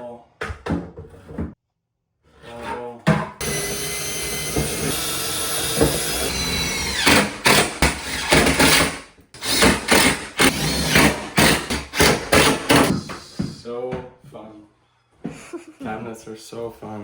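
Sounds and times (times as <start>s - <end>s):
power drill running: 3.4s - 12.9s.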